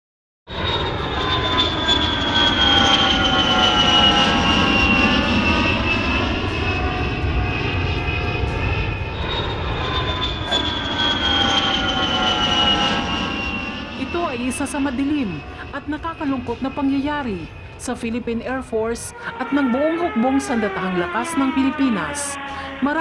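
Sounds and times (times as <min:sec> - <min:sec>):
aircraft engines roaring: 0:00.5 - 0:23.0
high whine falling in pitch: 0:01.8 - 0:18.2.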